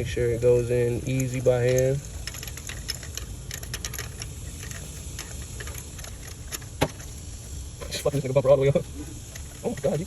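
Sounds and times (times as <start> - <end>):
steady low hum: 0.0 - 10.0
metallic clicks of socket wrench: 1.0 - 6.7.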